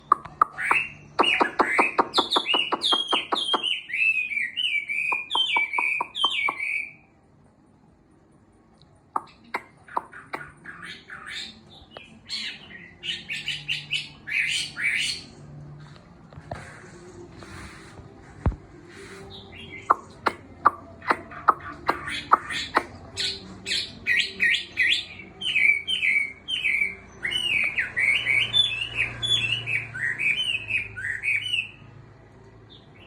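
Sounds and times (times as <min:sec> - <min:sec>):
bird singing: 0:00.0 - 0:07.1, 0:09.2 - 0:15.4, 0:19.2 - 0:31.9.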